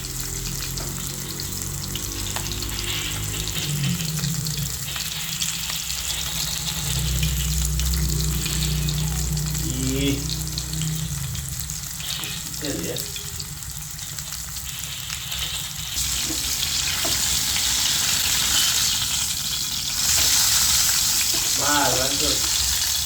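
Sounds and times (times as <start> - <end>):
fish sizzling in hot oil: 0.0 - 23.0
steady low hum: 2.8 - 13.9.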